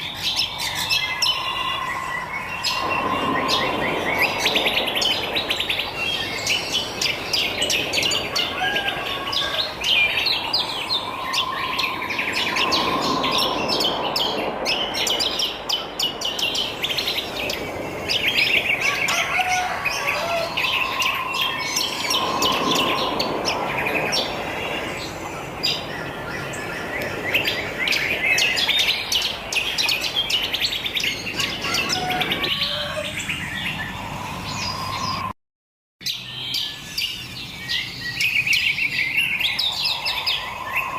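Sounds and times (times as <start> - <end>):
wild birds chirping and twittering: 0.0 - 35.3, 36.0 - 40.9
bird whistles: 8.4 - 15.0.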